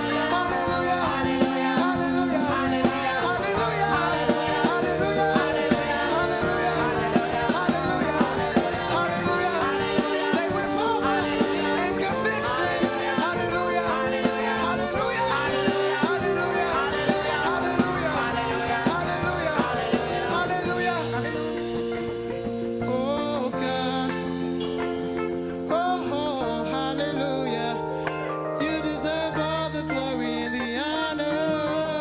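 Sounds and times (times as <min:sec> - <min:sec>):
drum beat: 0:00.0 - 0:21.6
gospel band playing: 0:00.0 - 0:32.0.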